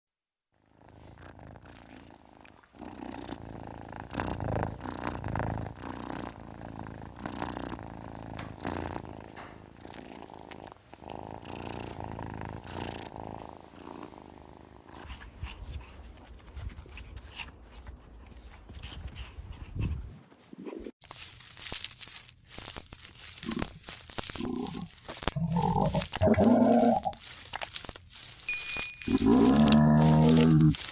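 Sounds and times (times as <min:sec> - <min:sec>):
cat purring: 0:00.6 - 0:15.2.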